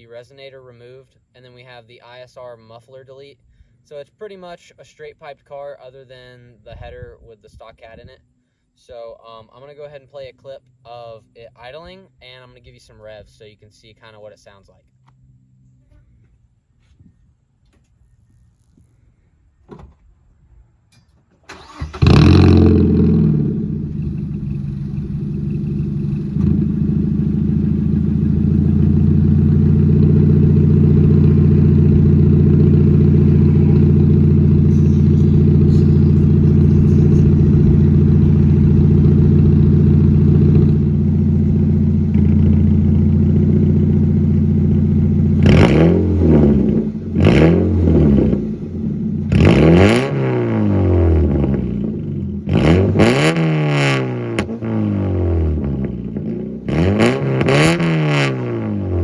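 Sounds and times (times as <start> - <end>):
car engine starting and idling: 20.9 - 53.2
engine revving: 21.5 - 59.0.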